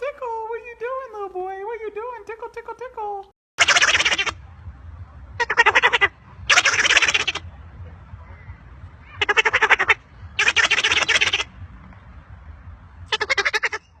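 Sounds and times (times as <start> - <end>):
parrot laughing chatter: 3.6 - 4.4, 5.4 - 7.4, 9.2 - 11.5, 13.1 - 14.0.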